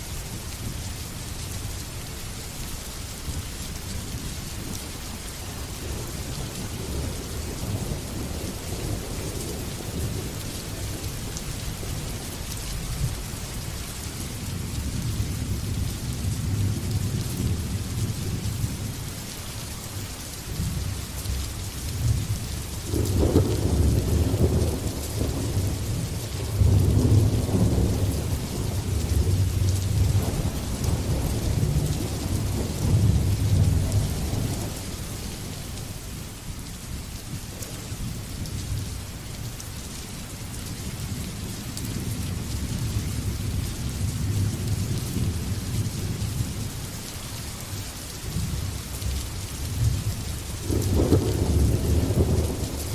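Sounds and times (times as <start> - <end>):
rain hissing: 0.0 - 52.9
thunder rumbling: 22.9 - 34.9, 49.8 - 52.9.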